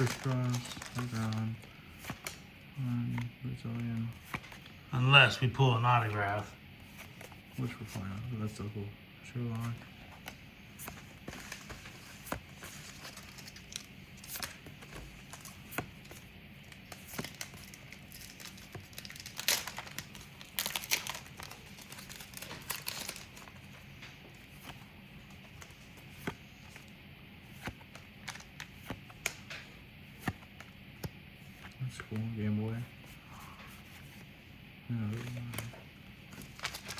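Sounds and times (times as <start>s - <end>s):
wrappers crinkling and tearing: 0.0s - 2.4s, 16.6s - 23.5s, 36.4s - 36.9s
cards being handled: 0.0s - 8.4s, 9.4s - 34.3s, 34.9s - 36.9s.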